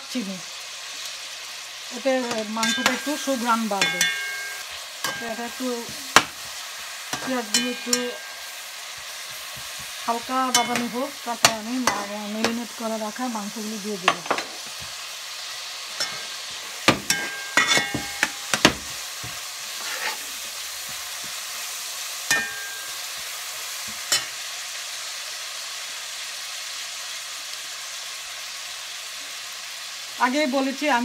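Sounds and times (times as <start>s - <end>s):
onions sizzling in oil: 0.0s - 31.0s
spatula scraping and clinking on pot: 2.3s - 12.1s, 16.0s - 21.4s, 22.3s - 23.3s.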